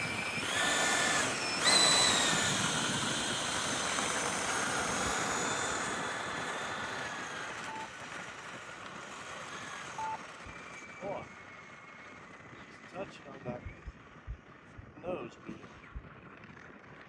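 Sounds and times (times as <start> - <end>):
electric ducted fans whining: 0.0 - 17.0.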